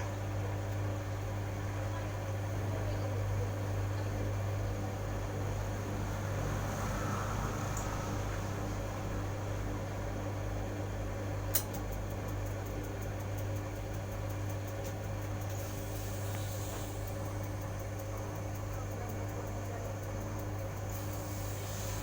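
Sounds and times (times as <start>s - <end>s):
machine electrical hum: 0.0s - 22.0s
sharp click: 11.5s - 12.8s.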